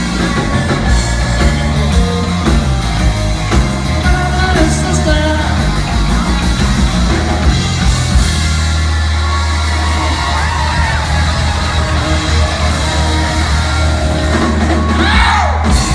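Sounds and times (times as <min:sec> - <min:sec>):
blues rock band playing: 0:00.0 - 0:15.9
audience yelling and whooping: 0:05.5 - 0:15.9.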